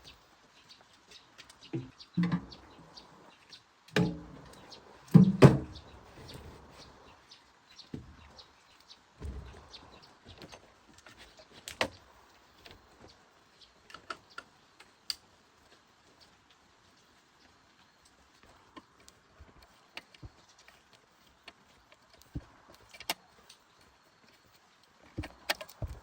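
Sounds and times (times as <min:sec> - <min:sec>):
dull thud: 0:09.2 - 0:09.8
light clicks and taps: 0:13.8 - 0:26.0.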